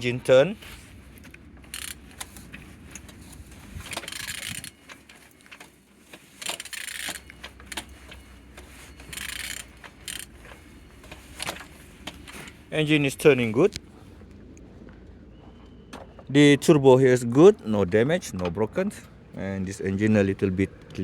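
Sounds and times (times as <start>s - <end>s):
engine rasping turning over: 0.0s - 14.5s
metallic wrench clicks: 1.7s - 2.0s, 9.1s - 10.3s.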